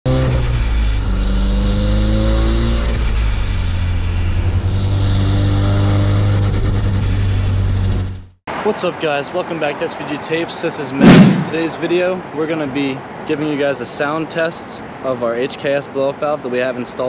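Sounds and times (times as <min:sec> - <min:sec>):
car engine accelerating hard: 0:00.1 - 0:08.0.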